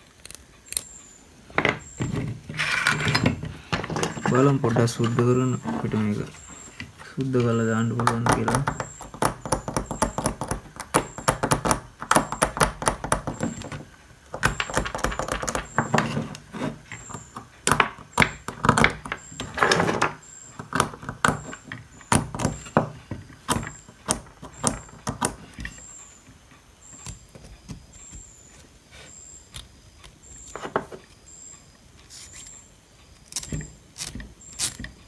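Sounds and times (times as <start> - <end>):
tool scraping rust off metal: 1.7 - 7.1.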